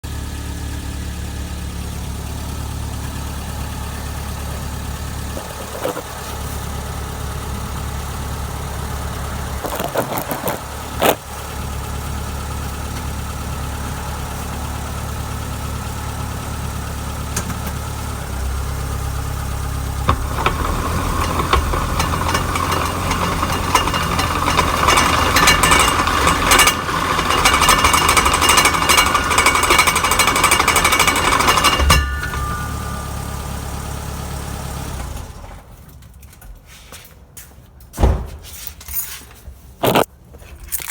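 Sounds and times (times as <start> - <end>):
car engine drone: 0.0 - 36.2
grinding from car rear: 8.5 - 11.8, 17.8 - 35.7.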